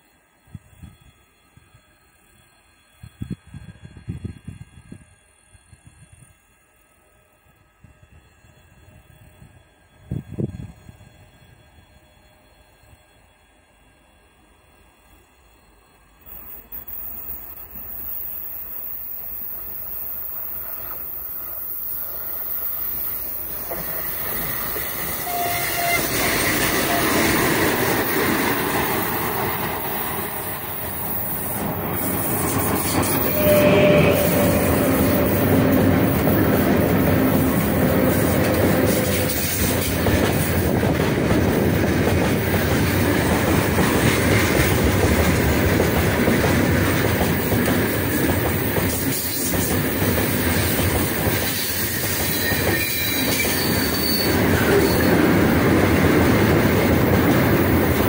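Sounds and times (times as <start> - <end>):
wheels clacking over rail joints: 20.6 - 58.0
locomotive rumble: 21.8 - 58.0.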